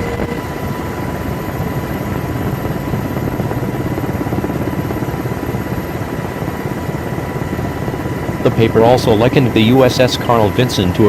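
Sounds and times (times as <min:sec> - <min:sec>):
aircraft engine rumble: 0:00.0 - 0:11.0.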